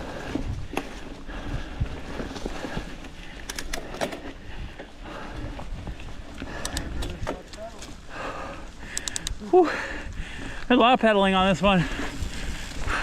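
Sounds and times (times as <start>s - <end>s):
wind buffeting microphone: 0.0s - 10.7s, 11.7s - 13.0s
bike clacks and rattles: 0.1s - 8.0s.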